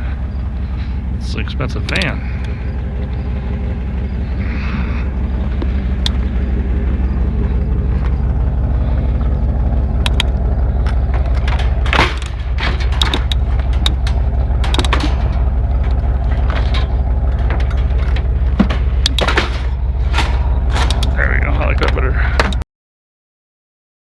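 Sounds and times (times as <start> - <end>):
rattles and knocks: 0.0 - 22.6
vehicle engine humming: 0.0 - 22.6
loud clunk: 10.0 - 21.2.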